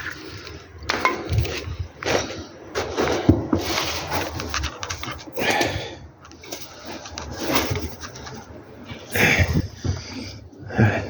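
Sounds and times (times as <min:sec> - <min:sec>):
hand tools knocking and clanking: 0:00.8 - 0:01.8.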